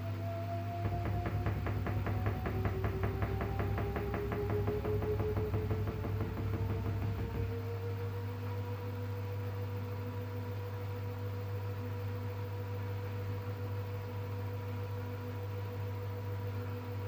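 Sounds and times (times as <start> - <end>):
washing machine humming: 0.0 - 13.4
constant tones: 0.8 - 7.8.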